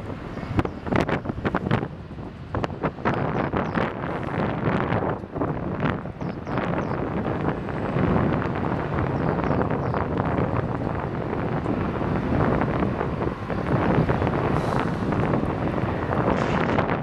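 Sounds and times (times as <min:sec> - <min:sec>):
wind buffeting microphone: 0:00.0 - 0:17.0
low rumble: 0:05.2 - 0:17.0.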